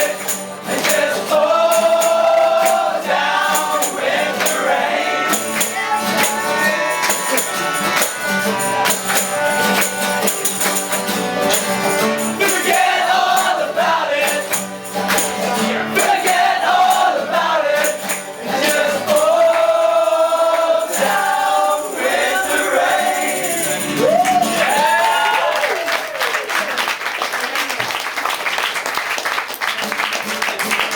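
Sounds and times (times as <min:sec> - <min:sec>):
person singing: 0:00.0 - 0:08.2
rhythmic percussion: 0:00.0 - 0:25.4
live band playing: 0:03.6 - 0:13.3.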